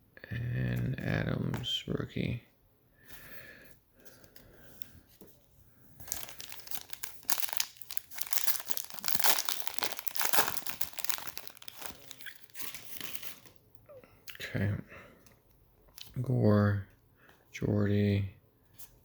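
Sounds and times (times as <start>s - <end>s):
wrapper crinkling and tearing: 6.0s - 13.6s.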